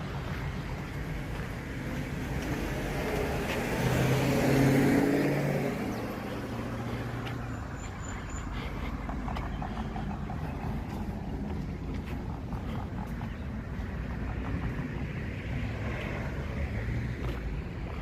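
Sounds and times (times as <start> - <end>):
low traffic rumble: 0.0 - 18.0
vehicle driving past: 0.6 - 18.0.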